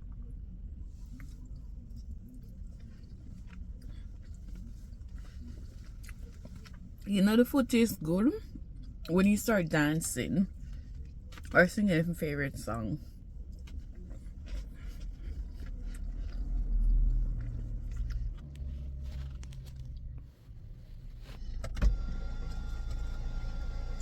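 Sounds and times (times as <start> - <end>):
car engine rumble: 0.0 - 24.0.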